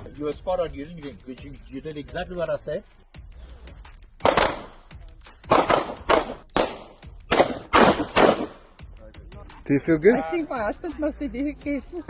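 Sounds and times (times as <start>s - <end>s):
sharp gunshots: 4.2s - 4.8s, 5.4s - 8.8s.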